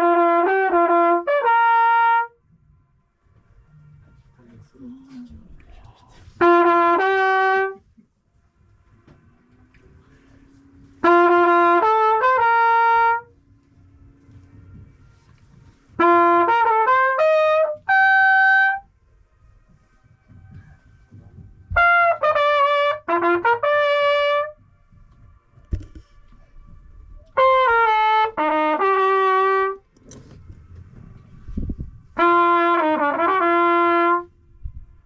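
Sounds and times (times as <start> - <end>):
trumpet melody: 0.0 - 2.4, 6.4 - 7.8, 10.0 - 19.0, 21.7 - 24.6, 27.2 - 30.0, 31.2 - 34.4.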